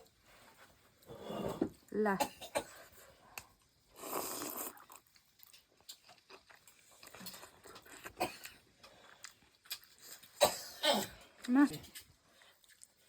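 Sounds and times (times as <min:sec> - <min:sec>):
soft chewing: 0:02.6 - 0:10.4, 0:11.0 - 0:13.0
person slurping soup: 0:03.9 - 0:05.0.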